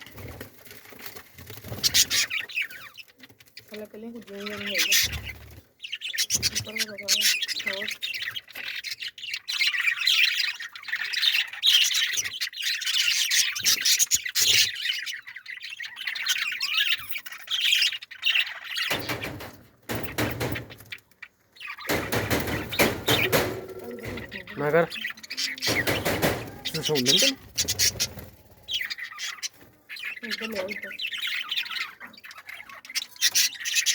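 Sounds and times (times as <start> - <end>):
small birds chirping and squawking: 0.0 - 33.9
knocking: 18.9 - 21.0, 21.9 - 24.6, 25.5 - 27.3.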